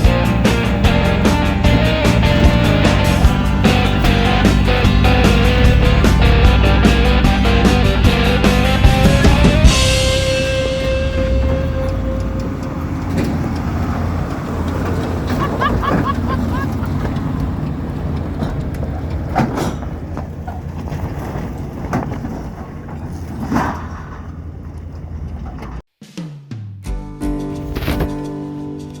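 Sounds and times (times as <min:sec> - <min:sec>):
knocks from rough trail: 0:00.0 - 0:17.4
truck engine running: 0:00.0 - 0:25.8.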